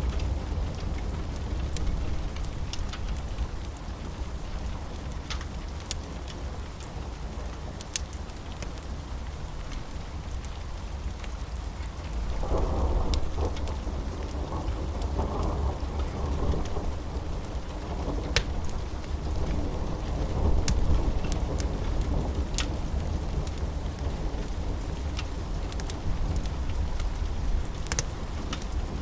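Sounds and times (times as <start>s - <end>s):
steady rain: 0.0s - 29.0s
sharp crackles: 24.4s - 29.0s.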